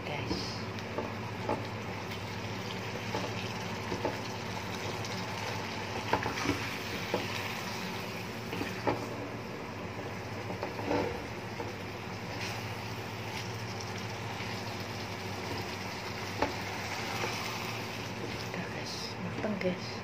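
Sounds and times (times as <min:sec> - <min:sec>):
low steady hum: 0:00.0 - 0:20.0
food sizzling in a pan: 0:01.2 - 0:09.1, 0:10.5 - 0:18.6.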